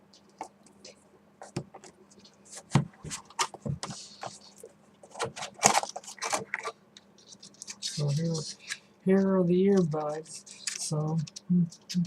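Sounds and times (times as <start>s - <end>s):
plastic and cardboard packaging crinkling: 2.5s - 12.0s.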